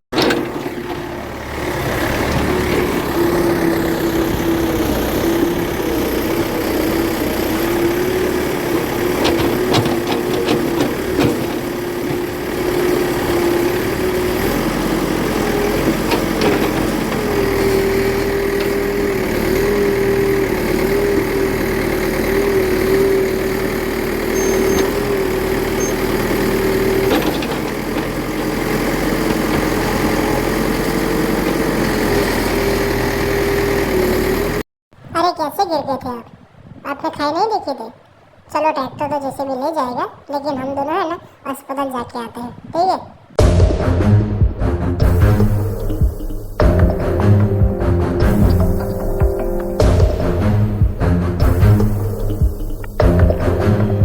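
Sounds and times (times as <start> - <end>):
toy backhoe loader drone: 0.1 - 34.6.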